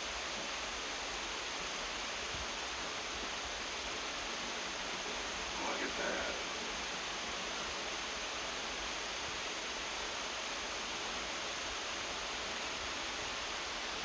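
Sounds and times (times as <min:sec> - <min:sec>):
light rain drizzling: 0:02.4 - 0:08.6.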